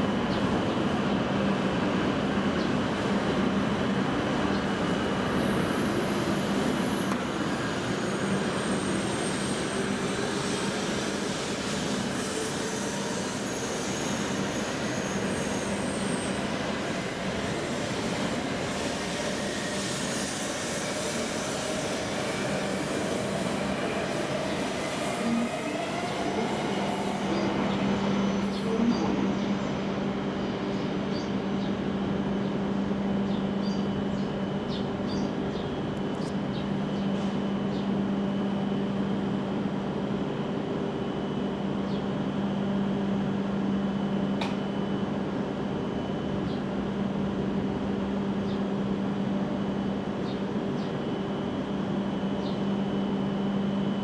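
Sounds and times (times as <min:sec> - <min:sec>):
train motor whine: 0:02.8 - 0:32.1
wheel and rail noise: 0:03.0 - 0:30.5.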